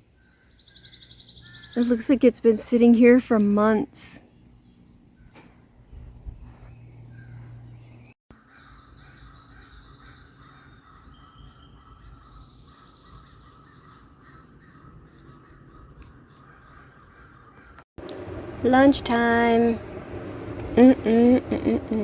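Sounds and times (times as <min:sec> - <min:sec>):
small birds chirping: 0:00.0 - 0:17.8
crows cawing: 0:08.4 - 0:17.8.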